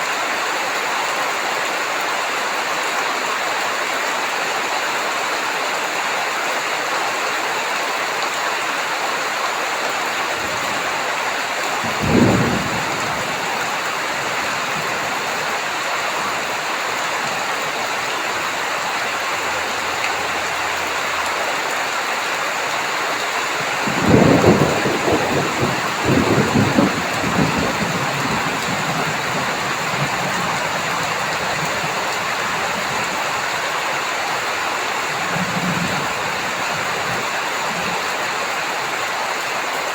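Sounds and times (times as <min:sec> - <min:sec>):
heavy rain falling: 0:00.0 - 0:39.9
rolling thunder rumble: 0:10.3 - 0:21.4, 0:23.5 - 0:33.6
thunder clap: 0:10.4 - 0:15.5, 0:23.6 - 0:33.2.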